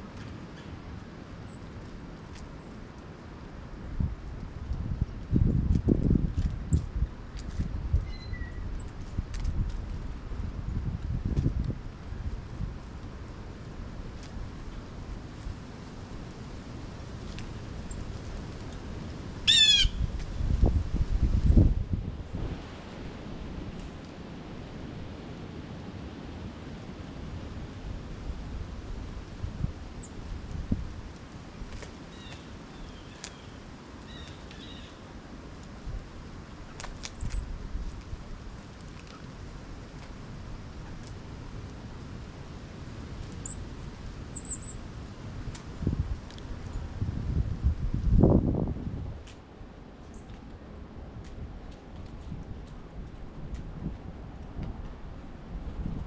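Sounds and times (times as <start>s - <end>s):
low rumble and rustle: 0.0s - 56.0s
faint high chirp: 8.0s - 8.6s
blue jay call: 19.5s - 20.1s.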